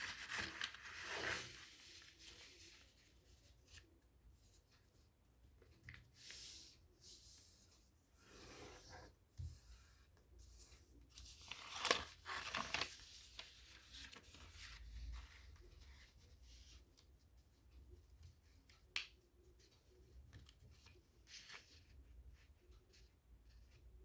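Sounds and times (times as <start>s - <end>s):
paper rustling and crinkling: 0.0s - 3.8s, 11.1s - 16.0s.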